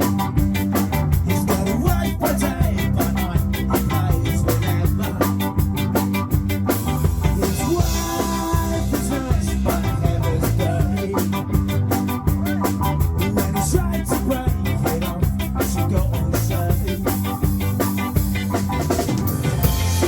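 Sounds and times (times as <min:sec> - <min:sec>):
band playing live: 0:00.0 - 0:20.0
drum kit beat: 0:00.0 - 0:20.0.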